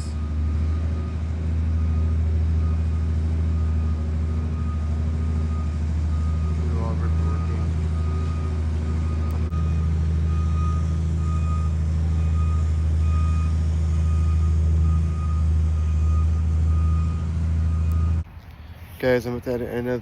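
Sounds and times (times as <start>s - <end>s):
heavy machine engine humming: 0.0s - 20.0s
backup alarm beeping: 5.5s - 18.3s.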